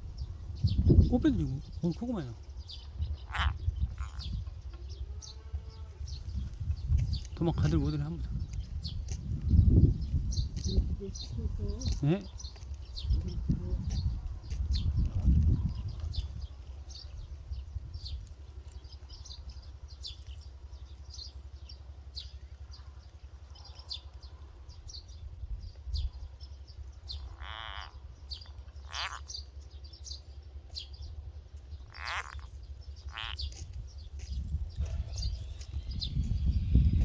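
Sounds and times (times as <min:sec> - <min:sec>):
low wind rumble: 0:00.0 - 0:37.0
buzzy pulsed animal call: 0:27.2 - 0:28.2, 0:28.8 - 0:29.3, 0:31.8 - 0:33.5.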